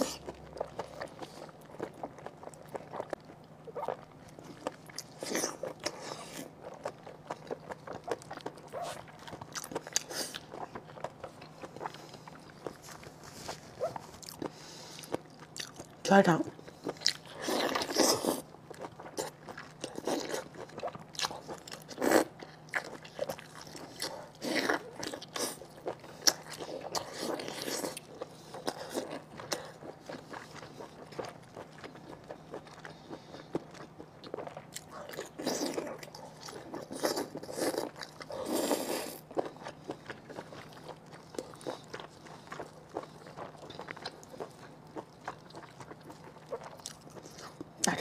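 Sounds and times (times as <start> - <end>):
crunchy chewing: 0.0 - 16.0, 16.6 - 48.0.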